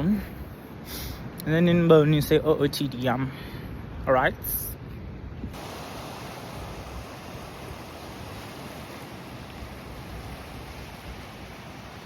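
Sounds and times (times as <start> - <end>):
wind noise: 4.8 - 12.0
surf: 5.5 - 12.0.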